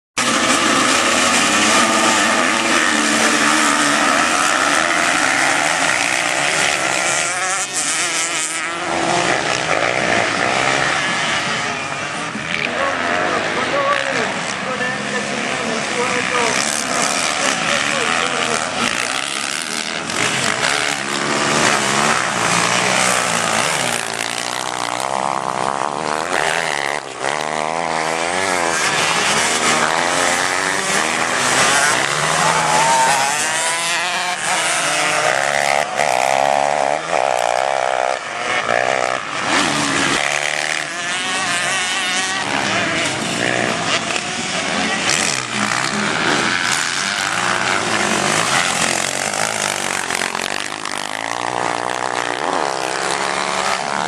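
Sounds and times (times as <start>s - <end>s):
racing motorcycles at high revs: 0.2s - 54.0s.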